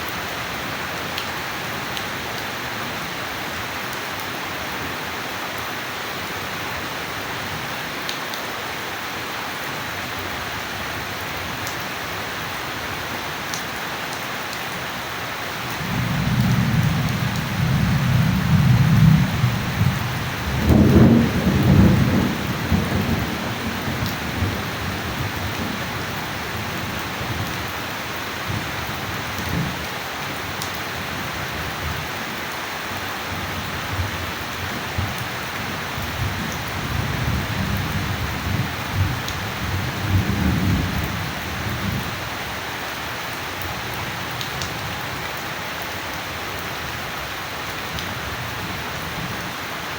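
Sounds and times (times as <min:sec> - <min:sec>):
heavy rain hissing: 0:08.7 - 0:49.9
thunder rumbling and cracking: 0:15.8 - 0:25.8, 0:36.2 - 0:42.0.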